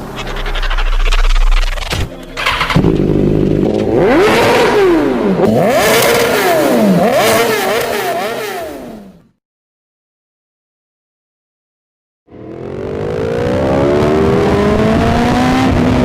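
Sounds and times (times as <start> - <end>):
motorcycle engine revving: 0.0 - 9.2, 12.3 - 16.0.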